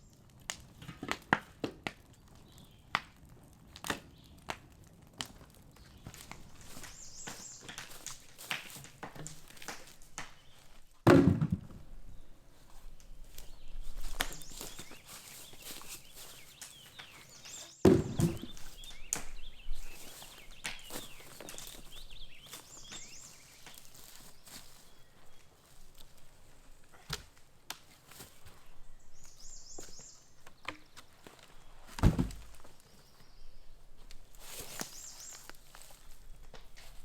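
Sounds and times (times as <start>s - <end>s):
birds chirping: 5.7s - 8.4s, 12.0s - 25.9s, 28.3s - 31.9s, 32.6s - 36.0s
footsteps: 6.0s - 11.5s, 12.6s - 26.2s
heavy thunks with low ring: 17.9s - 18.5s.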